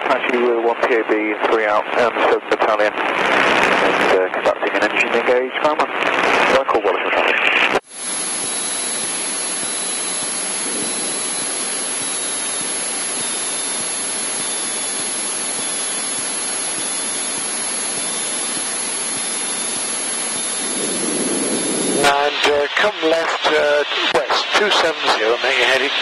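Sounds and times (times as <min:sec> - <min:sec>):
headset intercom static hiss: 0:00.0 - 0:07.8, 0:15.4 - 0:26.0.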